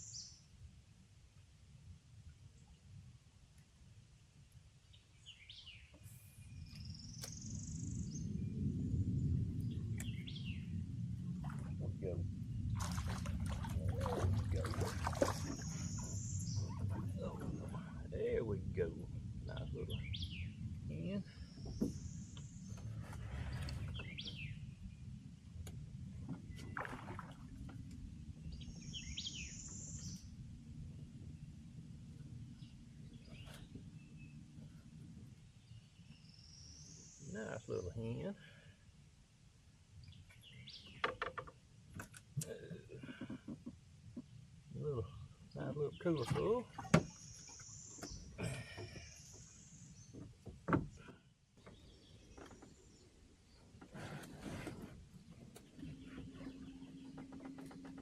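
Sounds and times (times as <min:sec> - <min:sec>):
birds chirping: 0:04.8 - 0:25.5, 0:28.3 - 0:38.6, 0:40.0 - 0:54.1, 0:54.7 - 0:58.0
low rumble: 0:06.5 - 0:36.0
wild birds calling: 0:14.0 - 0:18.4, 0:19.5 - 0:24.7, 0:28.5 - 0:30.3, 0:45.0 - 0:53.8
brief rustle: 0:53.8 - 0:57.9.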